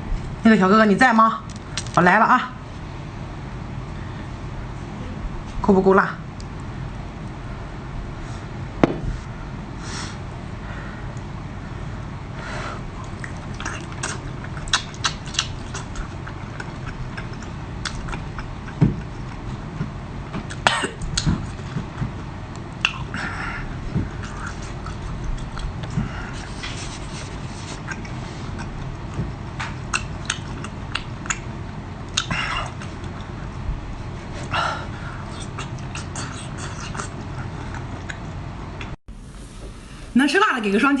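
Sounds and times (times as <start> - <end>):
wet chewing and slurping: 13.0 - 34.6, 35.2 - 39.0.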